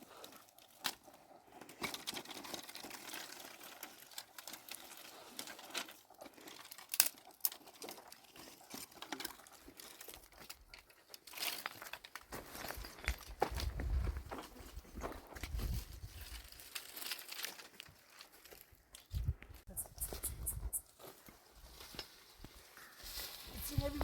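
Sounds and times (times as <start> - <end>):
dry twigs crackling and rustling: 0.0 - 24.0.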